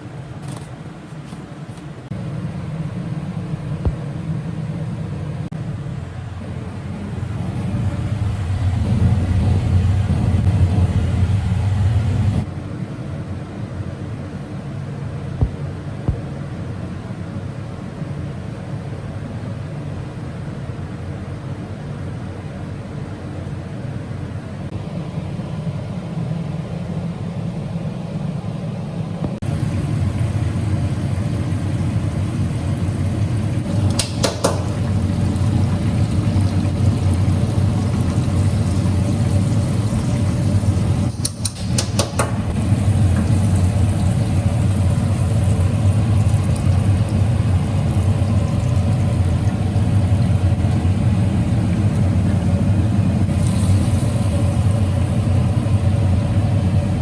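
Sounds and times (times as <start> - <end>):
motor humming: 6.7 - 12.5.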